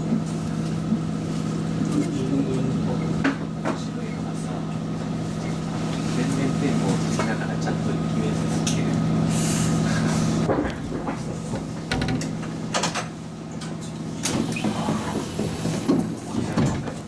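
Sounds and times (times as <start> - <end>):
train low hum: 0.0 - 16.6
sliding doors clattering: 10.4 - 17.0
scattered knocks: 10.5 - 13.1.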